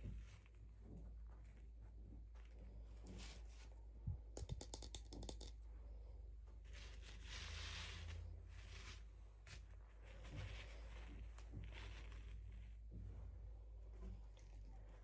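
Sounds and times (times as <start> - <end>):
clicks and taps of packaging: 4.3 - 5.6.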